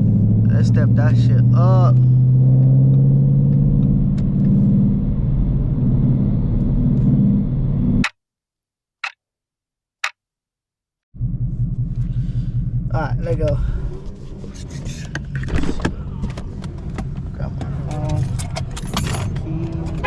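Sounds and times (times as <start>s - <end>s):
car engine running: 11.2s - 20.0s.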